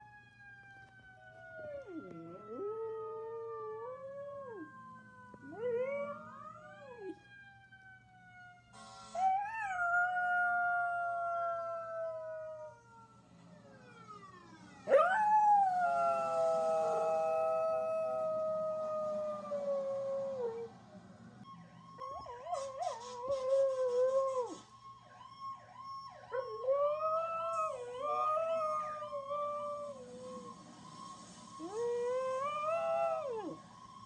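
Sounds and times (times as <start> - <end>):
fire truck siren wailing: 0.0 - 34.0
hiss-like burst: 30.0 - 32.1.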